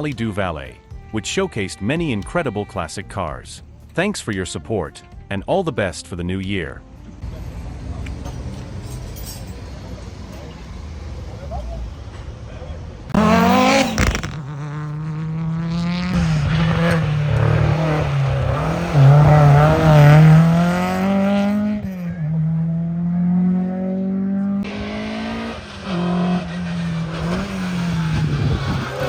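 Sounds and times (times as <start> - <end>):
rally car engines accelerating: 7.2 - 29.0.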